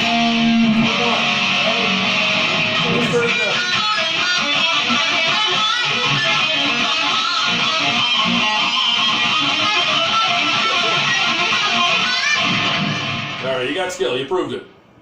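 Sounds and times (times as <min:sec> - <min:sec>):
electric guitar quick notes: 0:00.0 - 0:13.5.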